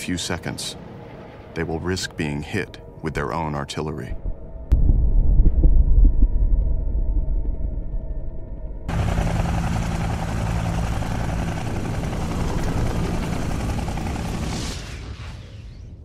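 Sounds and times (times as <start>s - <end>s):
helicopter flying past: 8.9s - 15.4s.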